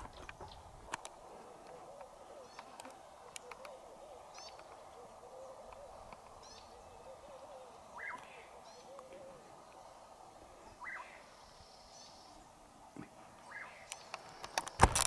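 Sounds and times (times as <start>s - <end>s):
low wavering bird call: 1.4s - 10.0s, 10.7s - 12.4s
short loud bird calls: 1.5s - 10.0s, 10.6s - 12.5s
high bird chirps: 10.8s - 12.3s.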